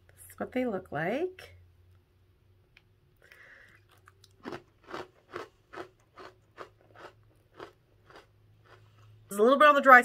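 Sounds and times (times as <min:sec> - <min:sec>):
crunchy chewing: 0:03.7 - 0:09.1.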